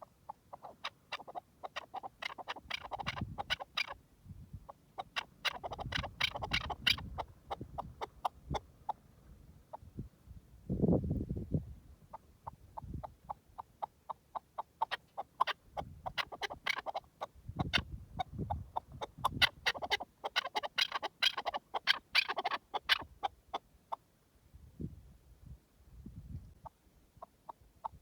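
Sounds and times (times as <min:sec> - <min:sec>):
partridge clucking calls: 0:00.0 - 0:04.0, 0:04.7 - 0:09.0, 0:12.1 - 0:24.0, 0:26.6 - 0:28.0.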